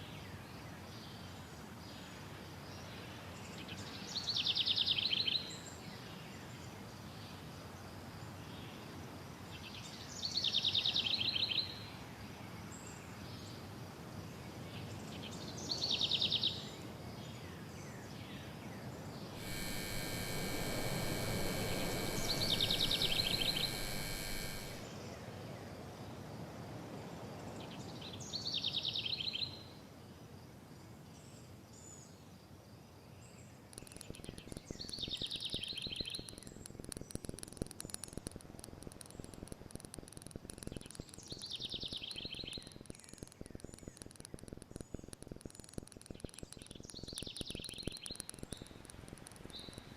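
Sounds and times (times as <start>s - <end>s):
buzzing hum: 19.4s - 24.9s.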